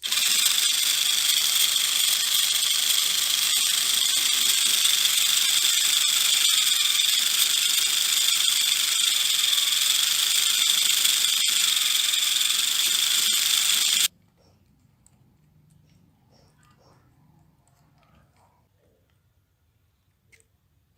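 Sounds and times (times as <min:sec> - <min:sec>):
high-pitched hissing whir: 0:00.0 - 0:14.1.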